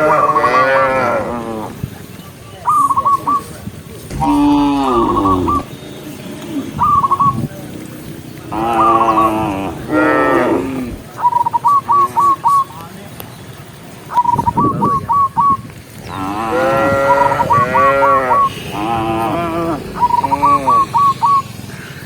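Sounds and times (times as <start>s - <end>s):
cows mooing: 0.0s - 1.8s, 4.1s - 5.7s, 8.5s - 11.0s, 16.0s - 21.6s
bird whistling calls: 2.5s - 12.8s, 13.5s - 16.2s, 17.0s - 18.9s, 19.5s - 22.0s.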